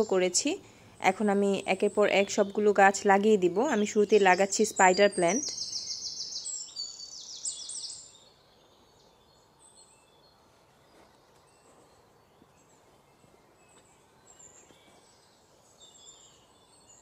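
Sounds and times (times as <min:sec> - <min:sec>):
bird singing rapid notes: 0:00.0 - 0:08.9
faint distant bird chirps: 0:00.0 - 0:17.0.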